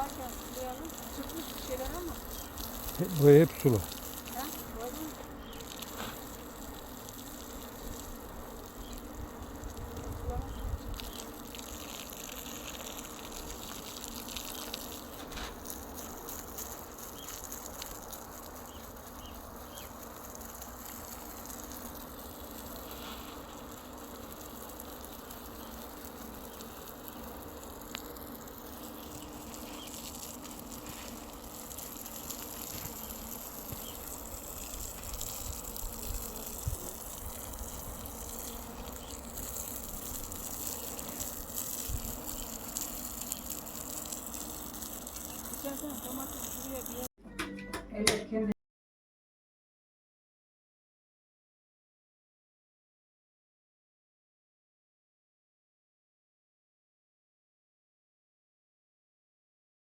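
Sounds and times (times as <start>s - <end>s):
water pouring onto soil: 0.0s - 47.1s.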